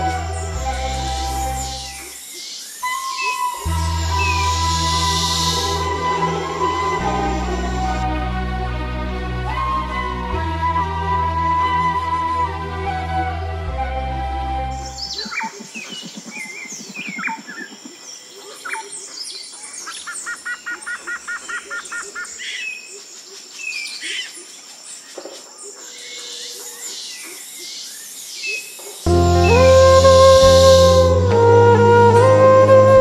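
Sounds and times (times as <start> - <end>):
background music: 0.0 - 2.2, 2.8 - 15.3, 29.1 - 33.0
steady high-pitched tone: 3.6 - 8.1
birds chirping and calling: 14.9 - 28.8.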